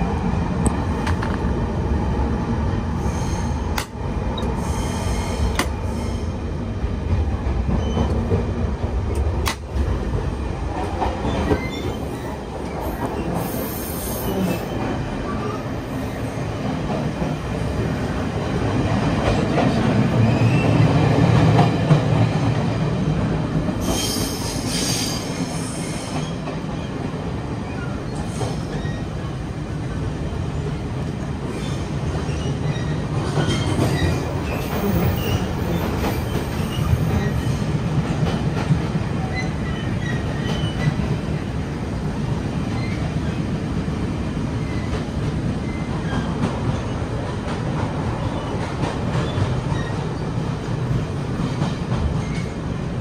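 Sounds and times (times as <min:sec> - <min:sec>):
train rumbling on track: 0:00.0 - 0:53.0.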